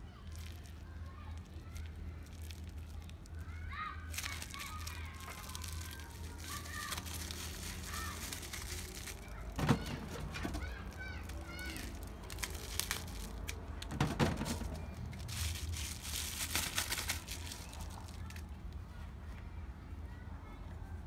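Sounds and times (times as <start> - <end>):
packaging crinkling: 0.2 - 18.5.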